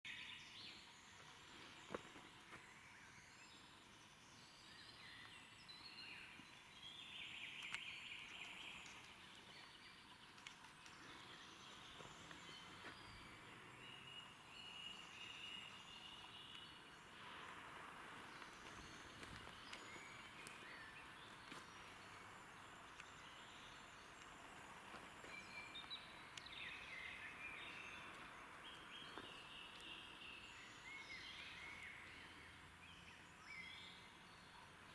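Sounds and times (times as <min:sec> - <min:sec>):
songbirds chirping: 0:00.1 - 0:34.9
steady hiss: 0:07.4 - 0:25.4.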